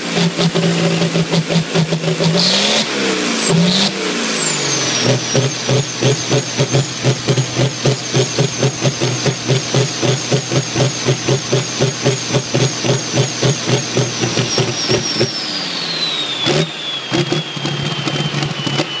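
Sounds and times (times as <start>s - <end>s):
turbo whistle: 0.0s - 19.0s
engine knock: 5.0s - 15.3s, 16.5s - 19.0s.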